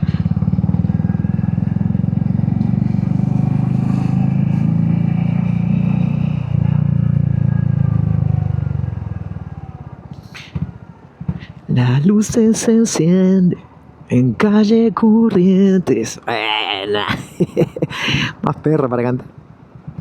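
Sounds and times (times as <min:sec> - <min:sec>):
motorcycle engine pulsing exhaust: 0:00.0 - 0:11.5.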